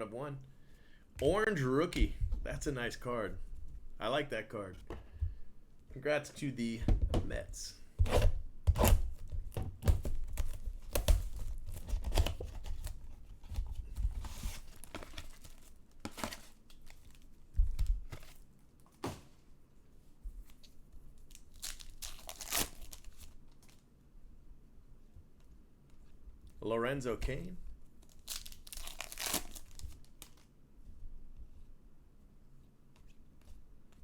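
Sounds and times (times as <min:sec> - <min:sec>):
packaging tearing and crinkling: 0:21.3 - 0:23.8, 0:28.0 - 0:30.5.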